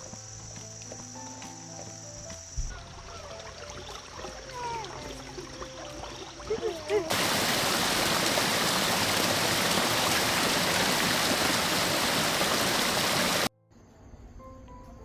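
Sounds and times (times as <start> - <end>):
water rushing: 7.0 - 13.5.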